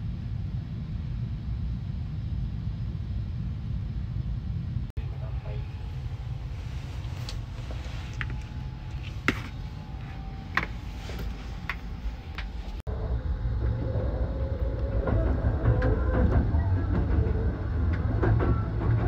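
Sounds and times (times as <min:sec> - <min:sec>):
steady hum: 0:00.0 - 0:18.8
train running rumble: 0:00.0 - 0:19.0.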